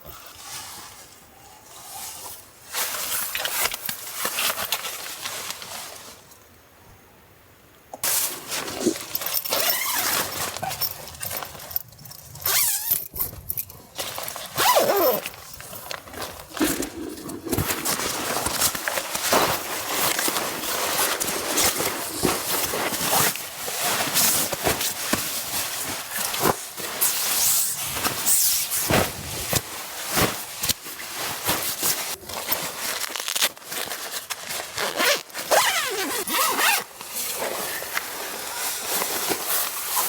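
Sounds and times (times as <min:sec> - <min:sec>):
fabric rustling: 0:08.0 - 0:40.0
zipper rasping: 0:12.4 - 0:13.3, 0:14.0 - 0:15.5, 0:16.1 - 0:19.0, 0:34.7 - 0:36.9.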